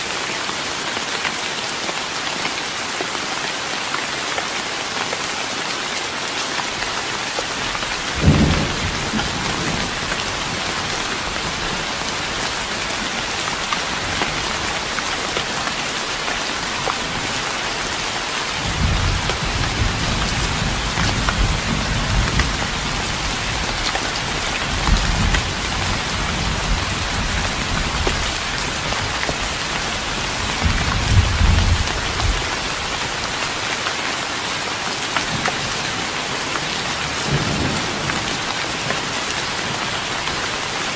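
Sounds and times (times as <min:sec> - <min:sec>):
rain on a wooden deck: 0:00.0 - 0:40.9
rolling thunder rumbles: 0:08.2 - 0:11.7.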